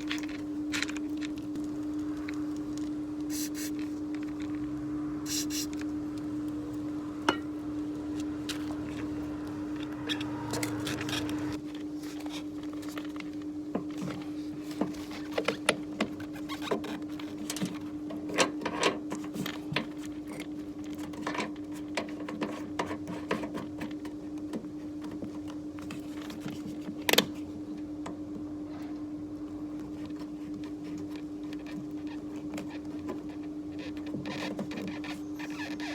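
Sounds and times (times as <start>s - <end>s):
machine hum: 0.0s - 11.6s.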